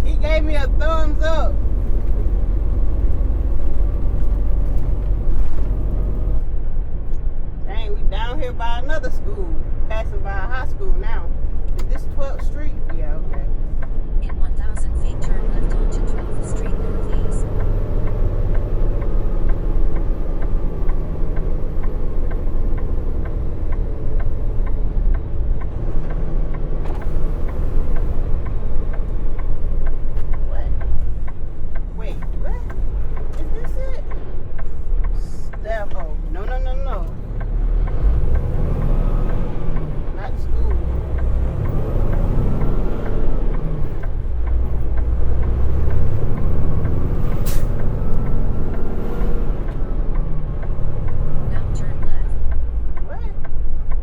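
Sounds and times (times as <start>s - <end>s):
diesel engine droning: 0.0s - 54.0s
turn signal clicking: 11.0s - 54.0s.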